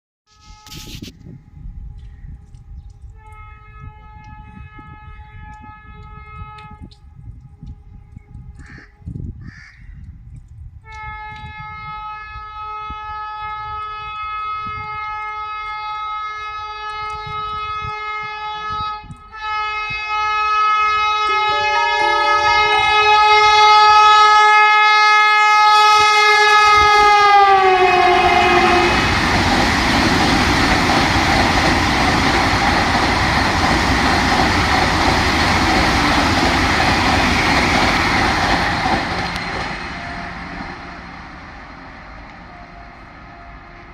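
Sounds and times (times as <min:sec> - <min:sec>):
train horn: 0:00.3 - 0:01.0, 0:03.2 - 0:09.1, 0:10.8 - 0:33.6, 0:35.5 - 0:43.9
train running past: 0:20.0 - 0:43.9.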